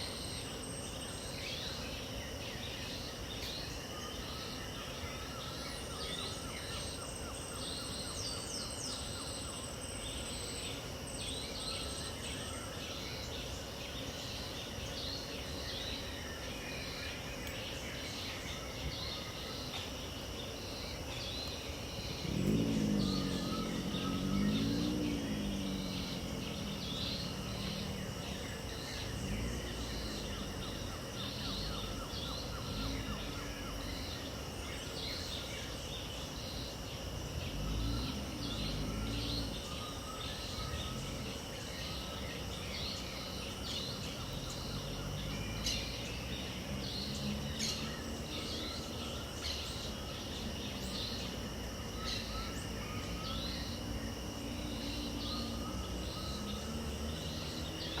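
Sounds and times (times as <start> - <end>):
birds chirping: 0.0 - 58.0
high insect drone: 0.0 - 58.0
low warbled bird phrases: 21.5 - 34.4.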